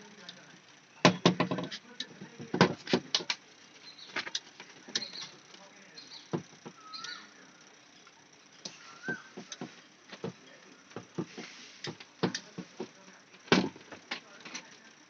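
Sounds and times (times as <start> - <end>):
clicks and knocks of hand work: 9.0 - 14.8.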